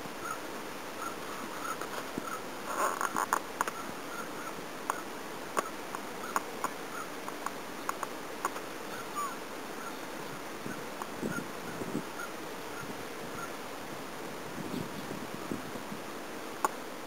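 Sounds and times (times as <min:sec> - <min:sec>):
flowing river: 0:00.0 - 0:17.0
swallows chirping: 0:08.9 - 0:13.6.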